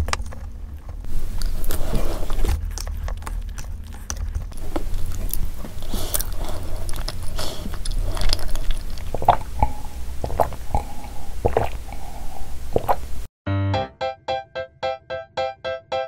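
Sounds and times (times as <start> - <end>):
person chewing: 0.0 - 13.2
plastic spoon scraping container: 1.2 - 8.4
person swallowing: 4.6 - 13.2.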